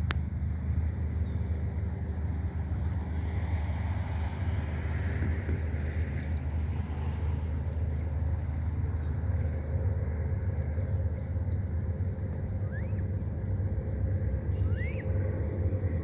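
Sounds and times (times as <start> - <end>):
low rumble: 0.0 - 16.0
rising bird peep: 14.5 - 15.2.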